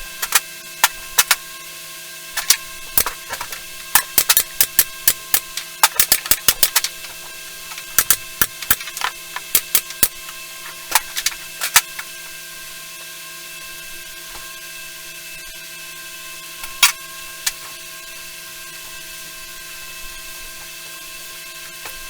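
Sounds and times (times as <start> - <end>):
high electrical hum: 0.0 - 22.0
sharp clicks and knocks: 2.4 - 10.2.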